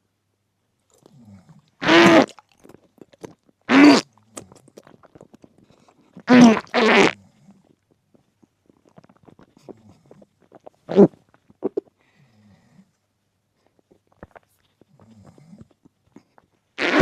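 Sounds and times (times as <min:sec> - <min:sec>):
short voiced vocal sounds: 0:01.8 - 0:02.4, 0:03.7 - 0:04.0, 0:06.2 - 0:07.2, 0:16.8 - 0:17.0.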